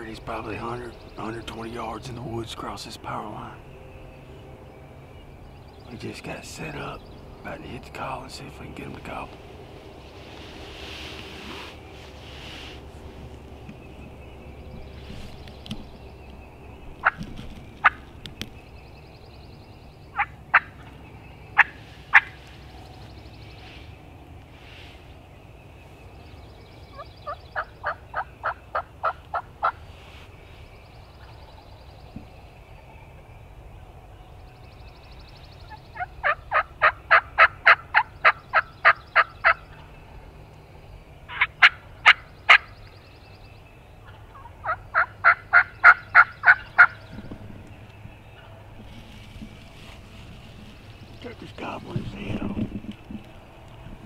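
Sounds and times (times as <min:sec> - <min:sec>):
turkey yelping: 0:20.2 - 0:20.9, 0:27.2 - 0:29.8, 0:36.0 - 0:39.7, 0:41.3 - 0:42.7, 0:44.1 - 0:47.0.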